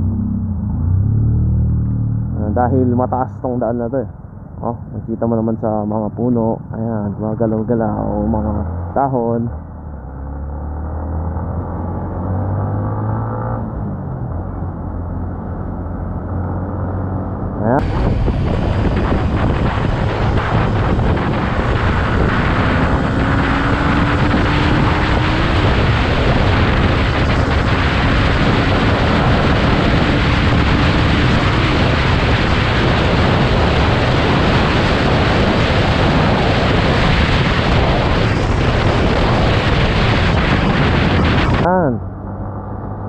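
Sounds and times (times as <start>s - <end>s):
faint motorcycle engine drone: 0.0s - 10.5s, 11.2s - 43.0s
wind buffeting microphone: 17.8s - 42.2s.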